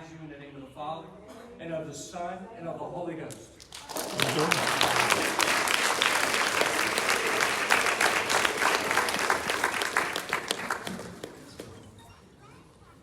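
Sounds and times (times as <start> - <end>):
congregation applauding and cheering: 3.6 - 11.8.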